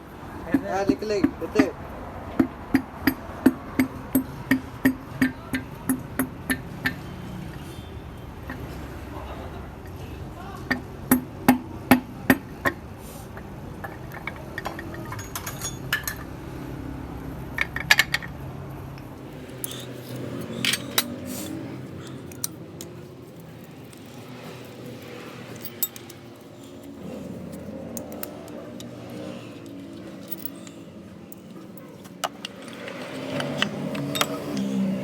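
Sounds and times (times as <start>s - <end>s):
metal clinking on metal: 14.8s - 16.2s, 19.3s - 35.0s.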